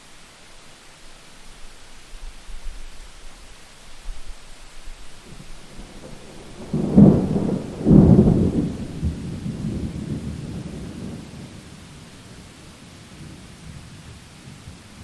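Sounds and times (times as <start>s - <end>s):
steady rain: 0.0s - 15.0s
thunder rumbling: 5.2s - 15.0s.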